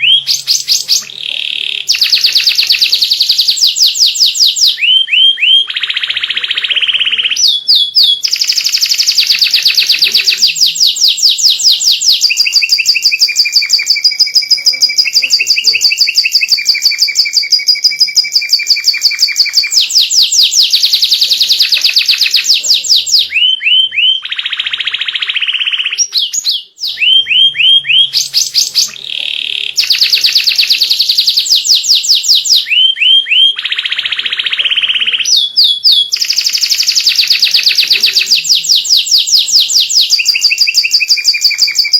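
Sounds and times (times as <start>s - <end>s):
canary singing trills: 0.0s - 41.9s.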